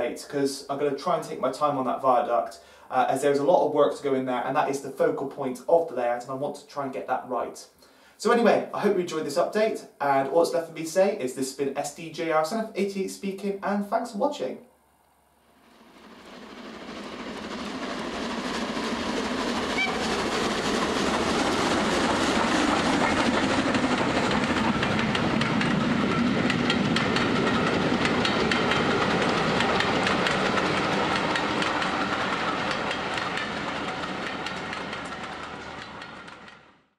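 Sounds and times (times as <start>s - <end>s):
train wheels clickety-clack: 16.3s - 36.8s.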